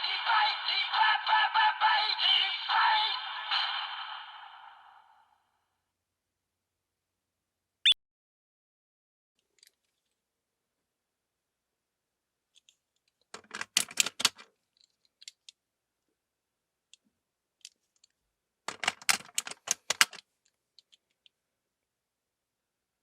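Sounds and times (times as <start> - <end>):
hard plastic parts clattering: 13.2 - 15.5, 18.7 - 20.2.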